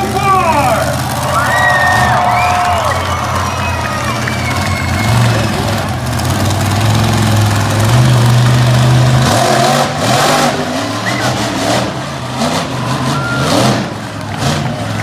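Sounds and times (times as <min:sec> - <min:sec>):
crowd noise: 0:00.0 - 0:15.0
monster truck engine revving: 0:00.0 - 0:15.0.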